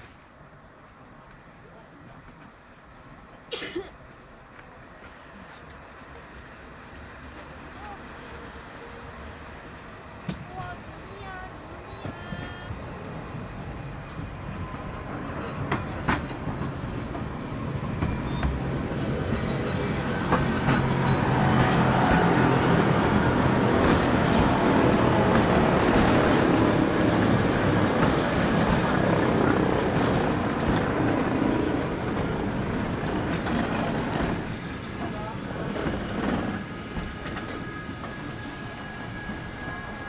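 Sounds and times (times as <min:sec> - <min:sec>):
electric railcar running past: 0:00.0 - 0:40.0
wheels clicking on track: 0:18.0 - 0:40.0.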